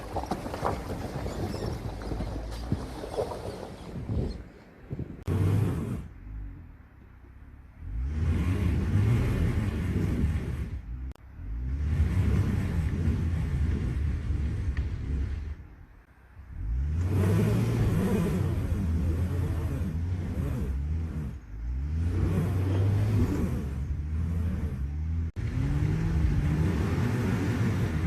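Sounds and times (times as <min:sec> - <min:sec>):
car engine revving: 0:05.2 - 0:06.8, 0:07.6 - 0:28.0.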